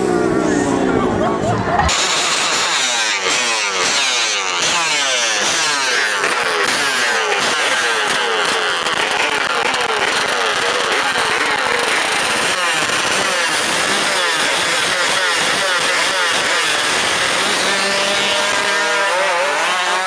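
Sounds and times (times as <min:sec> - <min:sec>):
motorcycle engines revving: 0:00.0 - 0:20.0.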